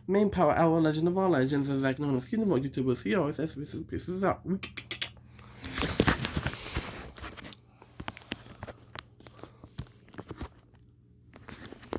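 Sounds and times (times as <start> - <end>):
rustling handling noise: 5.4 - 11.9.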